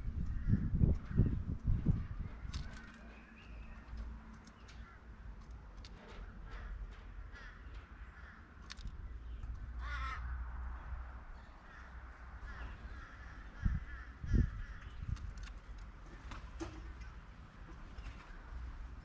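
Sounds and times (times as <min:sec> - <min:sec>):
steady low rumble: 0:00.0 - 0:05.7
crow cawing: 0:06.5 - 0:08.8, 0:09.8 - 0:10.5, 0:11.6 - 0:15.0.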